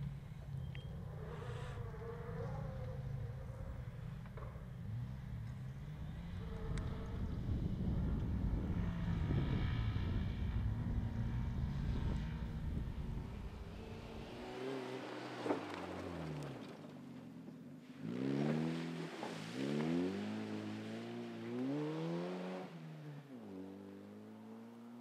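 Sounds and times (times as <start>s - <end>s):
car engine rumbling and revving: 0.0s - 25.0s.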